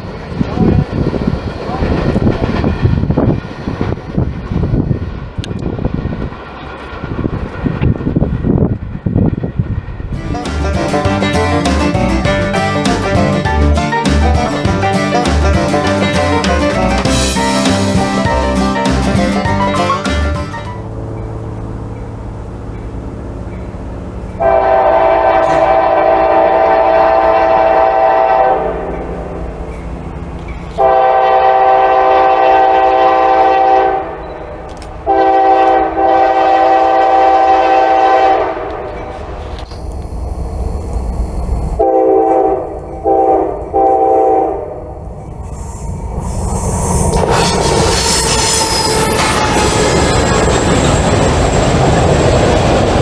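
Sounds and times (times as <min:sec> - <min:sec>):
train rumbling: 0:00.0 - 0:53.0
locomotive air horn blasts: 0:10.7 - 0:21.6, 0:24.4 - 0:29.2, 0:30.8 - 0:34.2, 0:35.1 - 0:38.7, 0:41.8 - 0:44.7.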